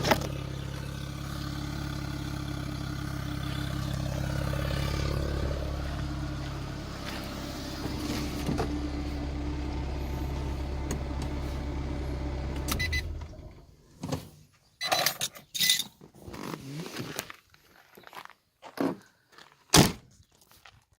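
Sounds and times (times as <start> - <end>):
car engine idling: 0.0 - 13.8.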